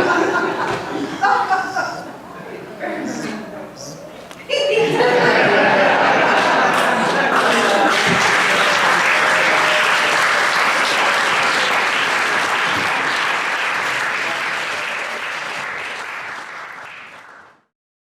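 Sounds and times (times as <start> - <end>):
audience applauding: 5.2 - 17.7.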